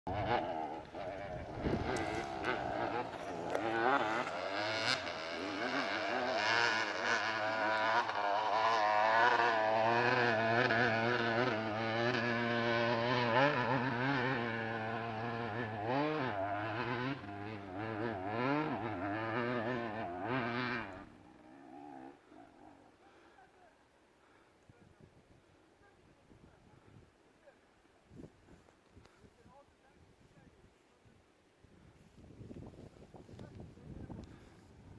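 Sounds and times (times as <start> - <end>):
motorcycle engine revving: 0.1 - 23.3.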